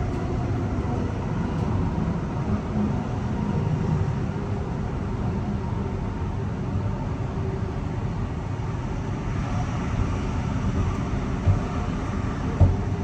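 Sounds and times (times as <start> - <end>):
train wheels rumbling on track: 0.0 - 13.0
knock: 12.6 - 12.9.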